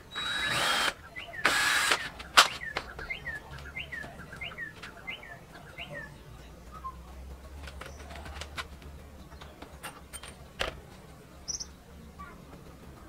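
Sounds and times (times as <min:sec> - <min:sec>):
small bird chirping: 0:11.4 - 0:11.8.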